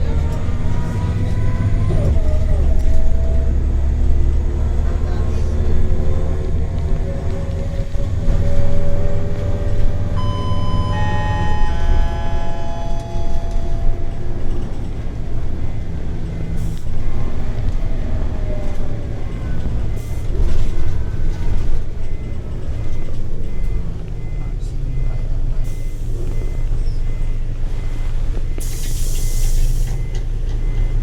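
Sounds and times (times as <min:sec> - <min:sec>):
bus engine rumble with whine: 0:00.0 - 0:31.0
high whining tones: 0:08.4 - 0:16.0.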